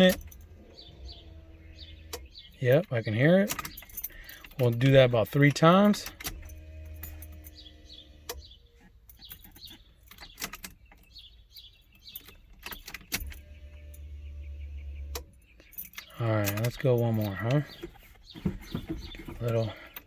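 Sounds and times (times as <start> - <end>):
electric fuel pump humming: 0.0 - 2.5, 6.2 - 8.6, 13.2 - 15.3
birds chirping: 0.0 - 20.0.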